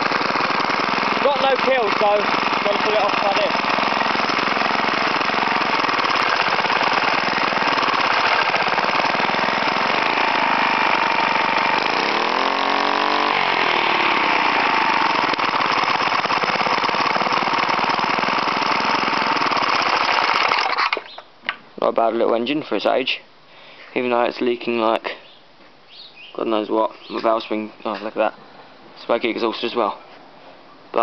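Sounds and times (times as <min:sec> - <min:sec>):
small mower engine running: 0:00.0 - 0:21.1.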